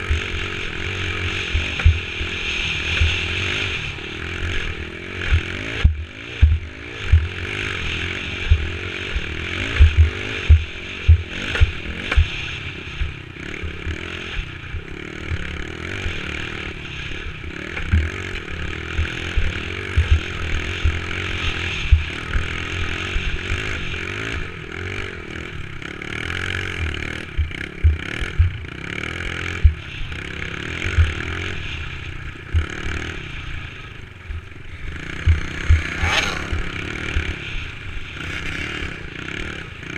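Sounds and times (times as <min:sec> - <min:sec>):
dirt bike engine running: 0:00.0 - 0:39.9
low thumps on microphone: 0:09.8 - 0:12.3.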